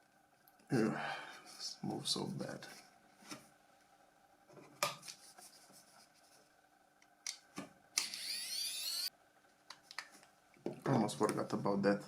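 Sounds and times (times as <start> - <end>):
high-pitched whir: 8.0 - 9.1.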